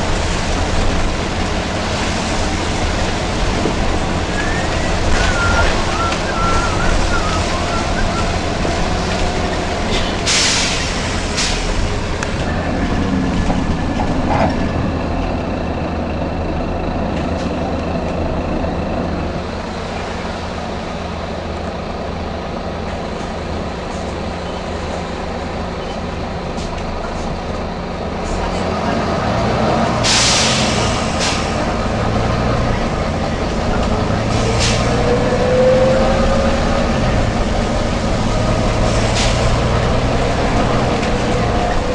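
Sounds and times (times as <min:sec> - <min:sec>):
bus diesel engine running: 0:00.0 - 0:41.9
compressed-air hiss: 0:09.9 - 0:11.8, 0:30.0 - 0:31.5.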